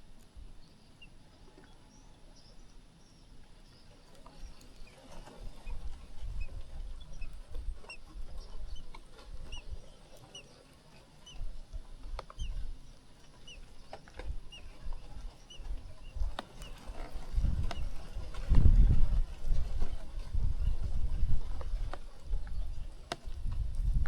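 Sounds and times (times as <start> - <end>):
nestling birds peeping: 0.2 - 18.5.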